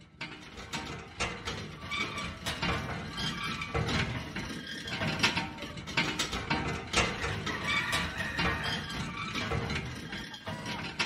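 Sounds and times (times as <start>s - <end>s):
windmill mechanism clicking and clattering: 0.0s - 11.0s.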